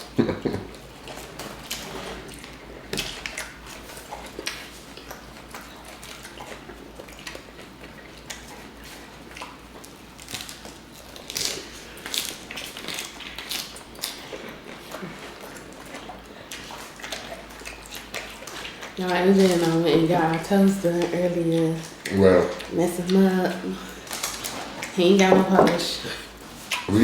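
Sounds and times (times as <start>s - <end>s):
people biting and chewing: 0.2s - 19.7s, 26.1s - 27.0s.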